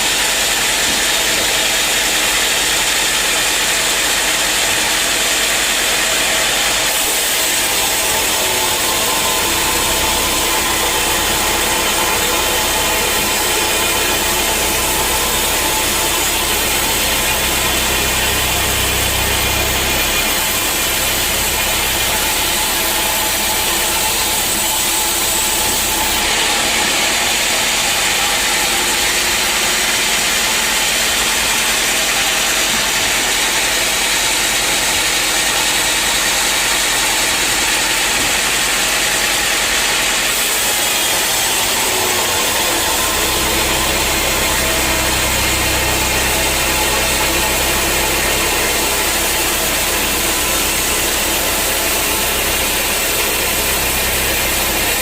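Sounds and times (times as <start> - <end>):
sawmill machinery hissing: 0.0 - 55.0.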